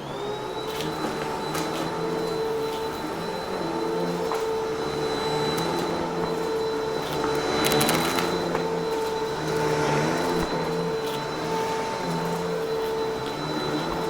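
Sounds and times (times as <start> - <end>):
vacuum cleaner running: 0.0 - 14.0
debris crackling in vacuum: 4.4 - 11.3.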